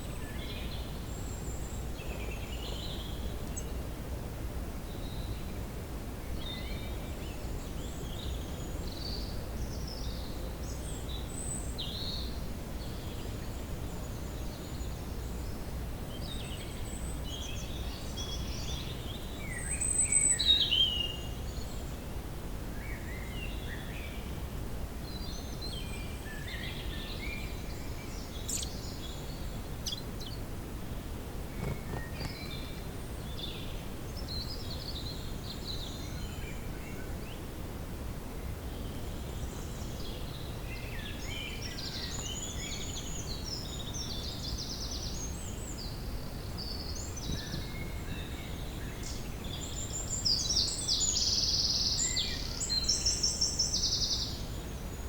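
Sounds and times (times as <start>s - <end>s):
birds calling and chirping: 28.2s - 30.4s.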